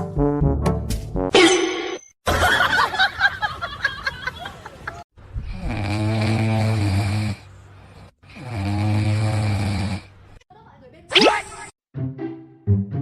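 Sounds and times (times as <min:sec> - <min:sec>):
pet snoring loudly: 0:05.4 - 0:10.2.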